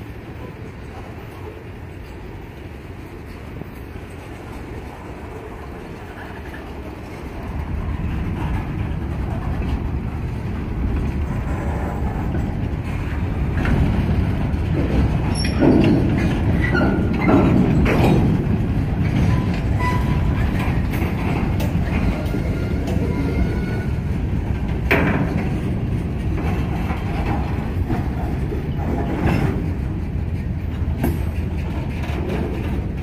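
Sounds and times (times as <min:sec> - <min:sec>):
freight cars rattling and clanking: 0:00.0 - 0:33.0
train wheels rumbling on rails: 0:00.0 - 0:33.0
wheels clickety-clack over joints: 0:00.0 - 0:33.0.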